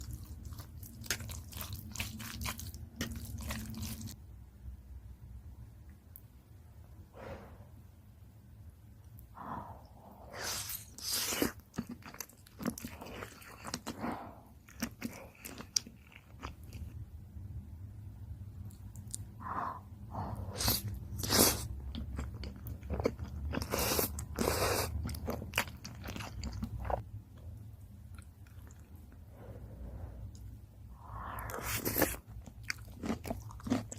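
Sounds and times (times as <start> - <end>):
biting and chewing pasta: 0.0 - 4.2, 10.5 - 17.0, 20.6 - 27.0, 31.3 - 33.9.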